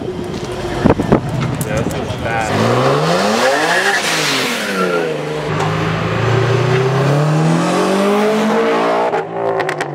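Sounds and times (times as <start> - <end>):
sports cars accelerating past: 2.4 - 9.9.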